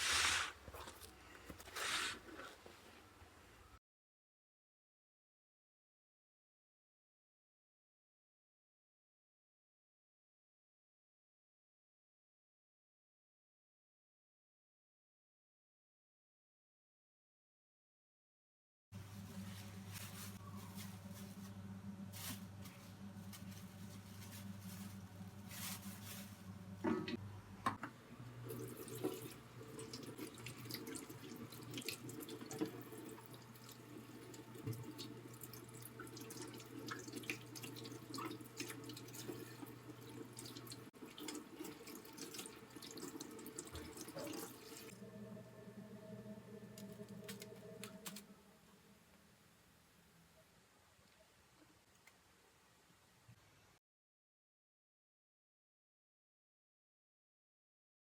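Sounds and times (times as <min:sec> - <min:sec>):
low steady hum: 0:19.0 - 0:40.9, 0:44.8 - 0:50.5
tap water running into sink: 0:28.4 - 0:44.9.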